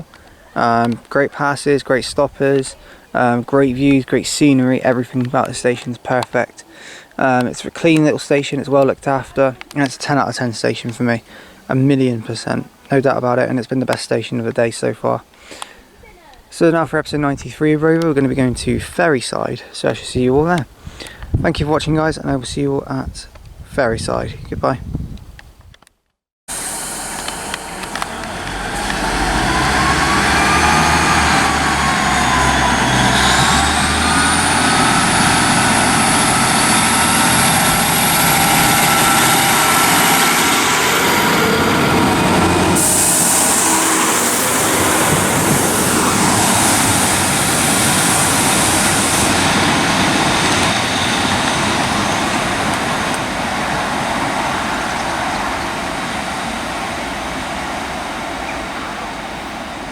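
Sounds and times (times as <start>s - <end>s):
high squealing tones: 26.5s - 53.1s
train engine rumble: 26.5s - 59.9s
train wheels on rails: 26.5s - 59.9s.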